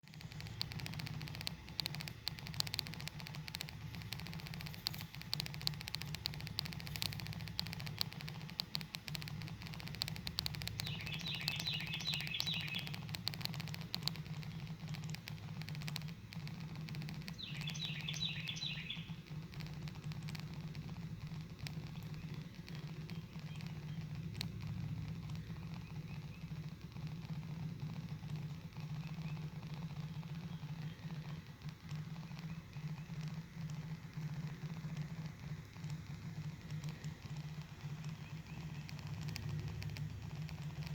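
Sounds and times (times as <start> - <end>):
clicks and crackles: 0.0 - 40.9
low hum: 0.0 - 40.9
songbird singing: 10.0 - 15.1, 17.2 - 19.2, 21.8 - 24.3, 25.5 - 26.6, 28.8 - 31.5, 32.2 - 33.3, 37.9 - 40.0.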